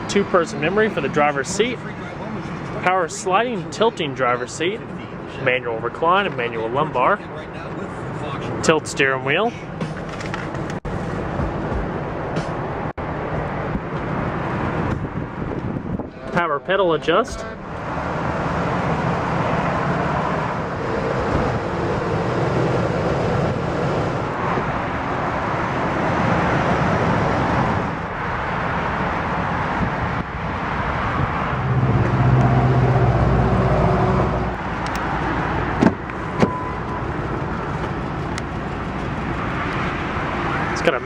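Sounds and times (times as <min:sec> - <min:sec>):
traffic noise: 0:00.0 - 0:41.0
low engine rumble: 0:09.4 - 0:41.0.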